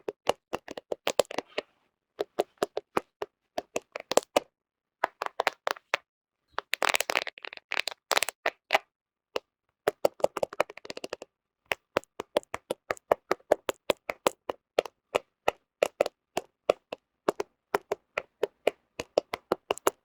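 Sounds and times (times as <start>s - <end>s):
fingernails tapping on phone: 11.8s - 20.0s.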